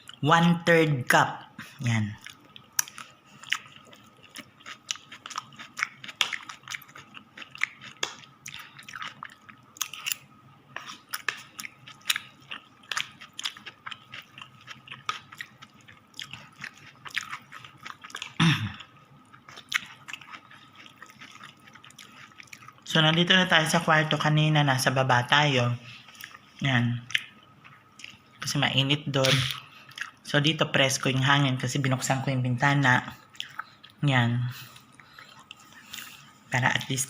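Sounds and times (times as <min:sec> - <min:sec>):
wet chewing and crunching: 0:02.2 - 0:23.3, 0:26.0 - 0:28.4, 0:29.3 - 0:30.2, 0:33.2 - 0:34.0.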